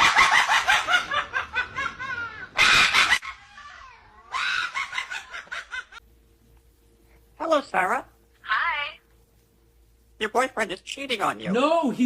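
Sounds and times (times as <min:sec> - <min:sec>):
cackling laughter: 0:00.0 - 0:06.0.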